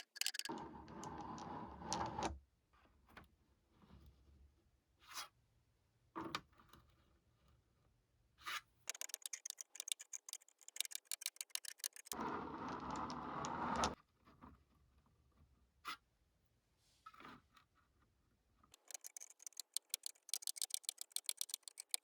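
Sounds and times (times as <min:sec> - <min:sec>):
nail tools tapping and scraping: 0:00.0 - 0:00.5, 0:08.9 - 0:12.2, 0:18.7 - 0:22.0
nail file rasping: 0:08.9 - 0:12.2, 0:18.8 - 0:22.0.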